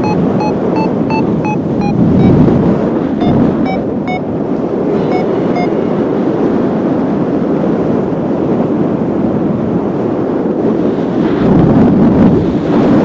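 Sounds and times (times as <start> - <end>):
variometer beeping: 0.0 - 6.5
wind buffeting microphone: 0.0 - 13.0.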